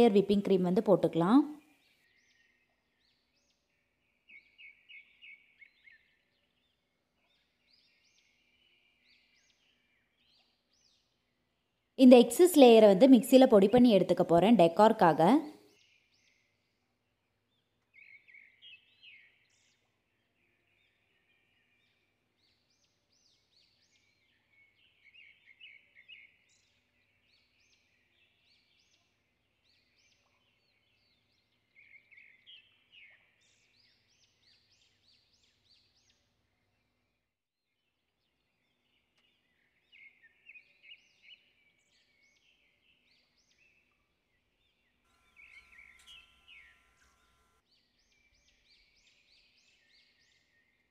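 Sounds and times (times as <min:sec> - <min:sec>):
faint bird chirping: 0:00.0 - 0:16.8, 0:38.5 - 0:50.9.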